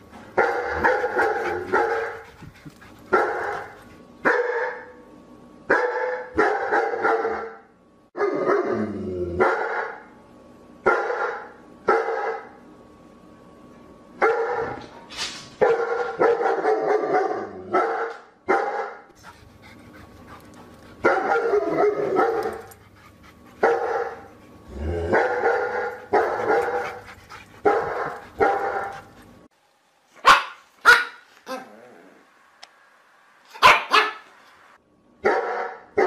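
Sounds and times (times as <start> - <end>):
dog barking: 0.4 - 2.2, 3.1 - 4.9, 5.7 - 7.6, 9.4 - 10.0, 10.9 - 12.5, 14.2 - 14.8, 15.6 - 19.1, 21.0 - 22.6, 23.6 - 24.2, 25.1 - 27.0, 27.6 - 29.0, 30.2 - 31.6, 33.6 - 34.3, 35.2 - 36.0.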